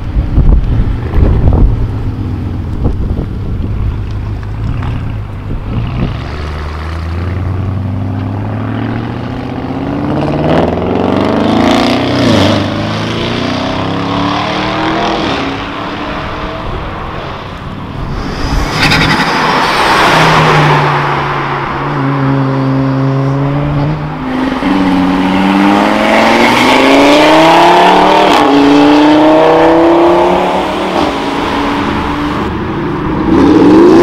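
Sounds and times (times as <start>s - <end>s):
car passing with low rumble: 13.7s - 28.0s
car engine accelerating hard: 18.0s - 32.6s.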